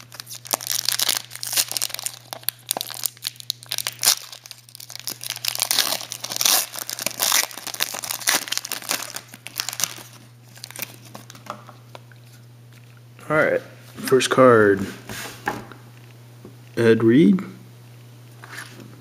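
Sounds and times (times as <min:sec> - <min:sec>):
plastic wrapping crinkling and tearing: 0:00.0 - 0:13.0.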